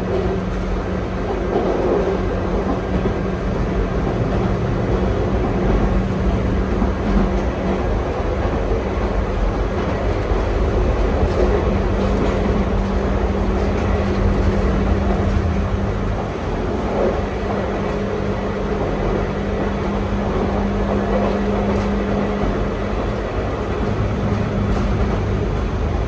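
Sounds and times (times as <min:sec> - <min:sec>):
constant low hum: 0:00.0 - 0:26.0
train wheels rumbling on rails: 0:00.0 - 0:26.0.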